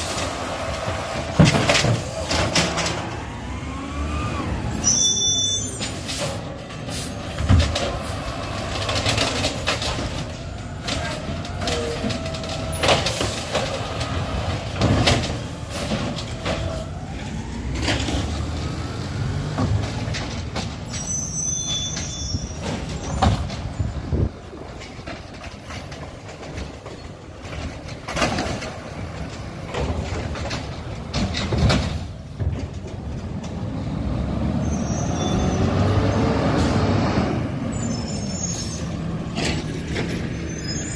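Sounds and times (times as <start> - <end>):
sharp knocks and clatter: 24.7 - 33.6.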